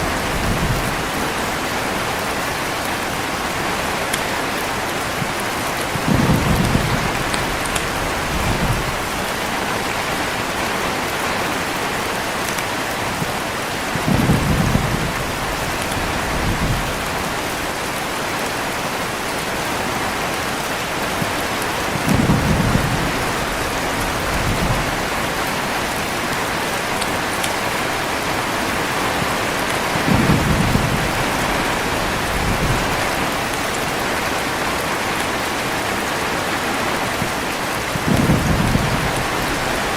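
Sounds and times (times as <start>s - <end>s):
thunder rolling: 0.0s - 3.3s, 5.0s - 10.7s, 13.9s - 17.8s, 21.1s - 27.7s, 28.9s - 33.5s, 37.1s - 39.9s
heavy rain falling: 0.0s - 39.9s.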